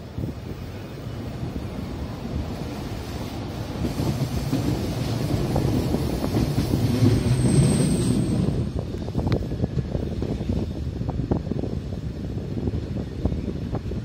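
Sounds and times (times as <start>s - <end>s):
train wheels rumbling and clattering: 0.0s - 14.0s
high wheel squeal: 6.1s - 8.8s.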